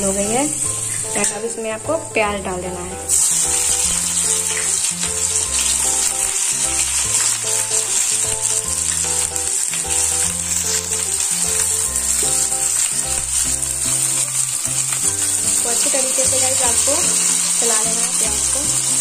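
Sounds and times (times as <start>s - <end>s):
background music: 0.0s - 19.0s
onions sizzling in oil: 0.0s - 19.0s.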